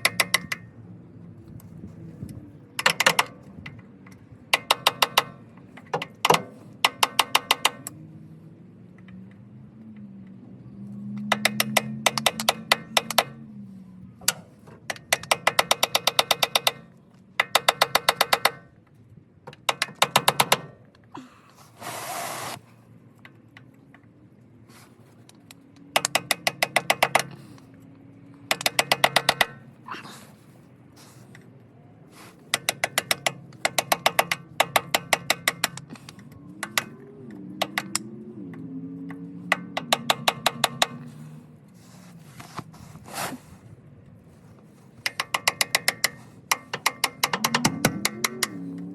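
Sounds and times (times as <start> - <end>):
hammer tapping on a chisel: 0.0 - 0.6, 4.5 - 8.0, 11.2 - 13.4, 14.2 - 18.6, 25.8 - 27.4, 28.5 - 29.6, 32.5 - 37.0, 39.5 - 41.2, 45.0 - 48.6
brief metal scrape: 41.8 - 43.6.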